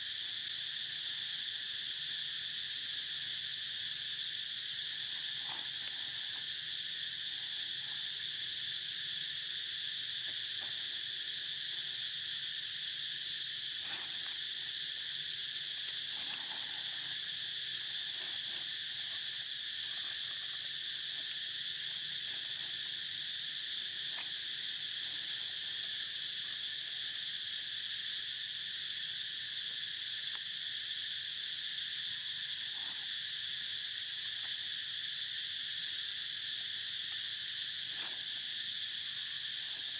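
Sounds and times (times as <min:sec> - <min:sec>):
insect chorus droning: 0:00.0 - 0:39.9.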